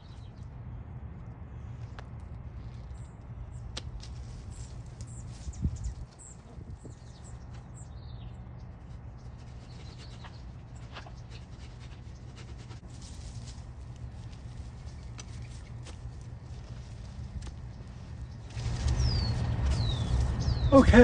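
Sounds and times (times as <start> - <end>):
small birds chirping: 0.0 - 21.0
low rumble: 12.3 - 21.0.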